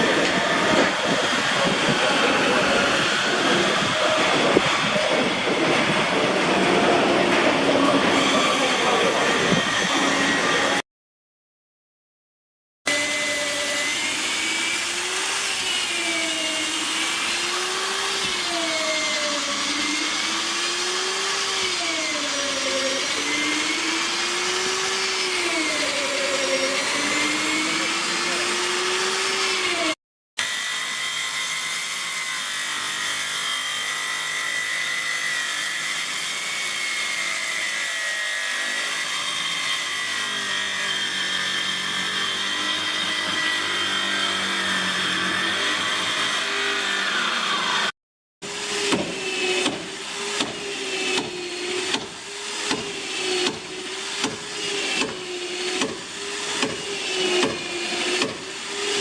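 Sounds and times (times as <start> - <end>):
power tool running: 0.0 - 10.8, 12.9 - 59.0
tool strokes on wood: 35.7 - 59.0.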